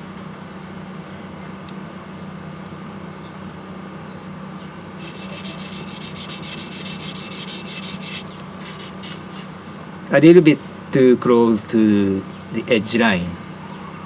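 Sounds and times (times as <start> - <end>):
blade rubbing on whetstone: 5.0 - 9.6.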